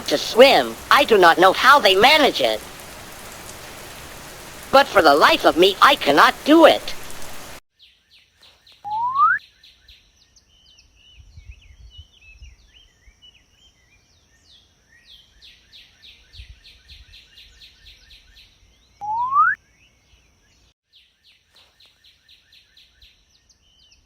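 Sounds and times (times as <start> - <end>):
small birds chirping and trilling: 7.0 - 24.0.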